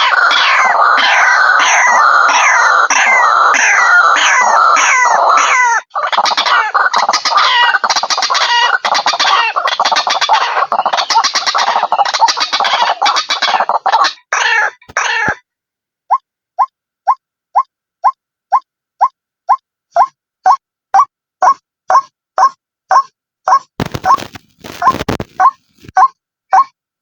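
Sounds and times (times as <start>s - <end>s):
bird harsh repeated calls: 0.0s - 15.4s, 16.1s - 26.7s.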